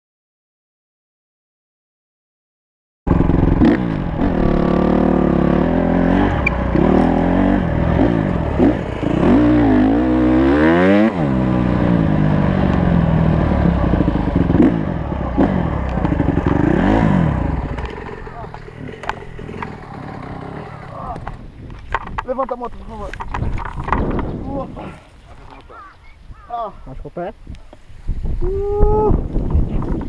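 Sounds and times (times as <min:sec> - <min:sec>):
motorcycle engine revving: 0:03.1 - 0:21.5.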